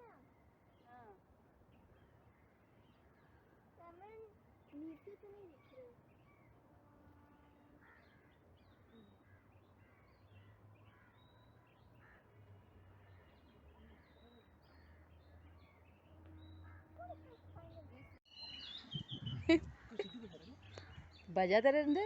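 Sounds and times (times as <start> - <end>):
birds chirping: 7.6 - 22.0.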